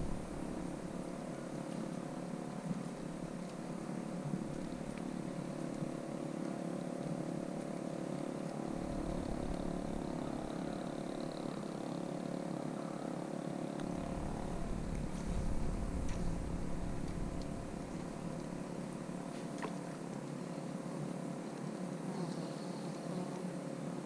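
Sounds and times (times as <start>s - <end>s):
boat engine humming: 0.0s - 12.5s, 13.7s - 19.4s.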